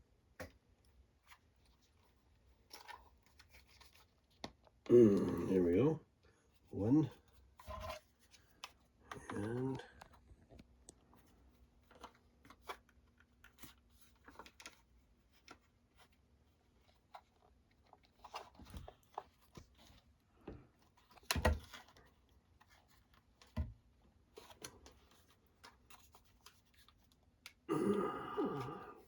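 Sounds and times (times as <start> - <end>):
plastic packaging clicks and crackles: 8.3 - 16.2.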